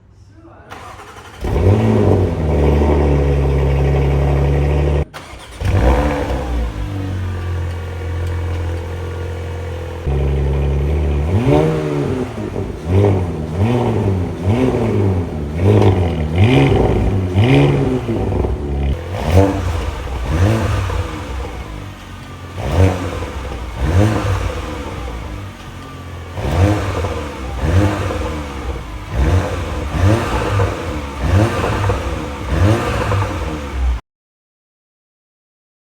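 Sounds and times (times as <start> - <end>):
car engine fast idle: 0.7 - 2.6, 5.2 - 11.3
car engine revving in throttle blips: 0.7 - 34.0.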